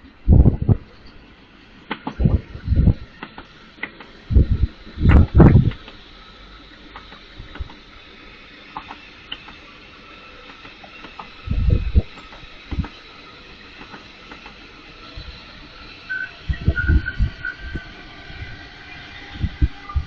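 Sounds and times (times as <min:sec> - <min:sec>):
steady hiss with faint whine: 0:00.0 - 0:20.0
heavy low thumps: 0:00.3 - 0:00.8.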